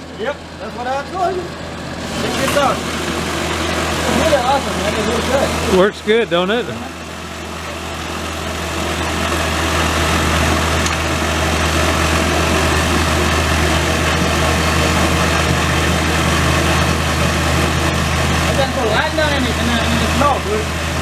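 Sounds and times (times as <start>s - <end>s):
tractor snowblower engine running: 0.0s - 21.0s.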